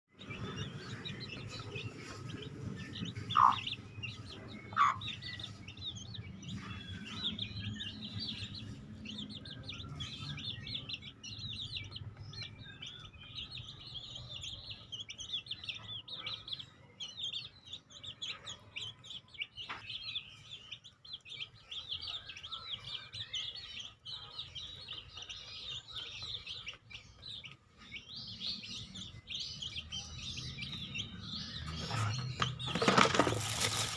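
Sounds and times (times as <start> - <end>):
birds chirping: 0.1 - 33.9
fowl calling: 3.3 - 3.7, 4.7 - 5.0.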